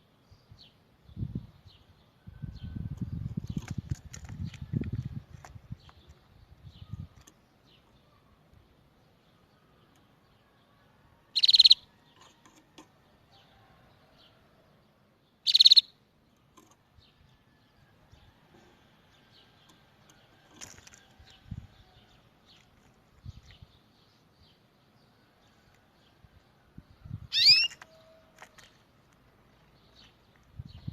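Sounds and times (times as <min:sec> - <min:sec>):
faint bird chirps: 0:09.3 - 0:12.4, 0:15.4 - 0:16.0, 0:27.0 - 0:28.4
canary trilling: 0:11.4 - 0:12.4, 0:15.4 - 0:15.9, 0:27.3 - 0:27.8.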